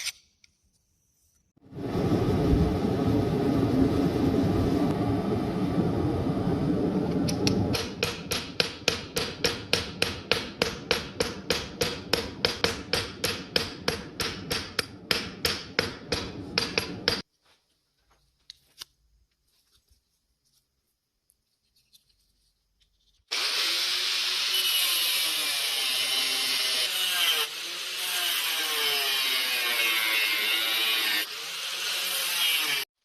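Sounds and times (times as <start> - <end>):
continuous roar: 1.6 - 8.0
hammer striking hot steel: 7.4 - 17.3.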